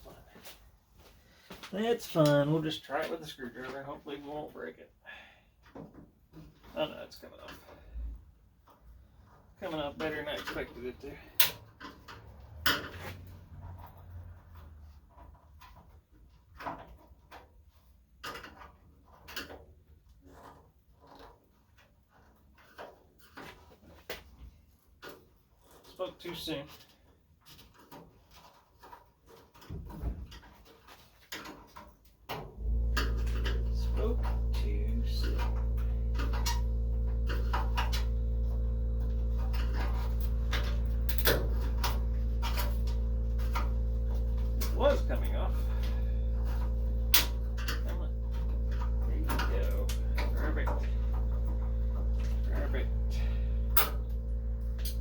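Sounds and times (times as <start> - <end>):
steady low hum: 32.5 - 55.0.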